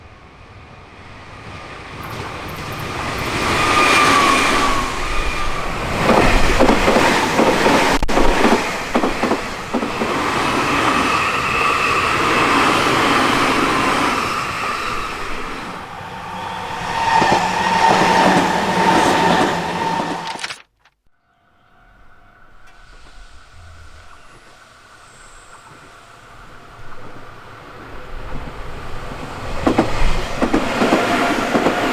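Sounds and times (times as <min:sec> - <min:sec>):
wheels clacking over rail joints: 0:02.0 - 0:20.4, 0:28.3 - 0:31.9
train motor whining: 0:02.0 - 0:20.6.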